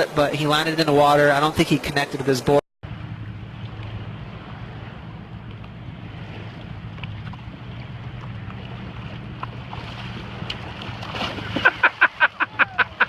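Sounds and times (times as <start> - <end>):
water noise: 0.0 - 13.0
wind: 0.0 - 13.0
jet ski engine droning: 2.8 - 13.0.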